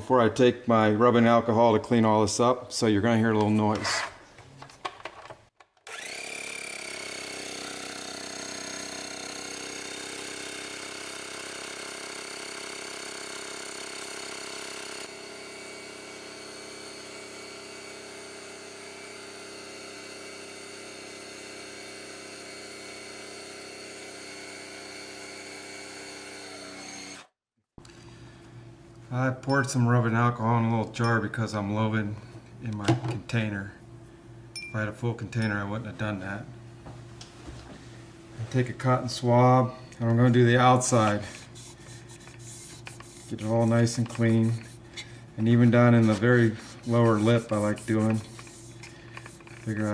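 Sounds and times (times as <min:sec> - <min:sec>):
air hose blowing: 0:40.8 - 0:49.9.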